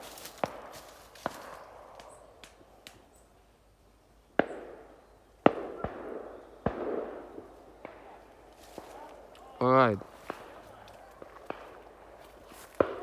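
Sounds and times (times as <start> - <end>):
distant gunshots: 0.0 - 1.9, 4.4 - 9.3, 10.0 - 13.0
loud shotgun shots echoing: 5.5 - 8.2.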